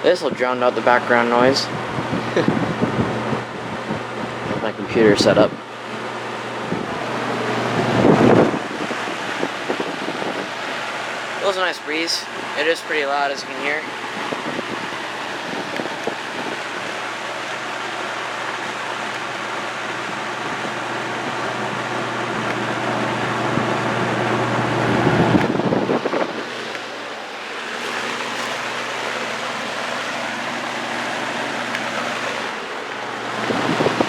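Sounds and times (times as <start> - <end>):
box fan running: 0.0 - 34.0.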